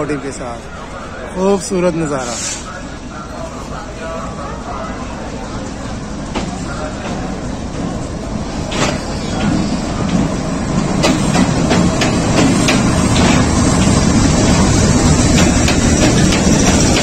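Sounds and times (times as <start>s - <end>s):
train rumble: 0.0s - 17.0s
wheels clacking over rail joints: 6.3s - 17.0s.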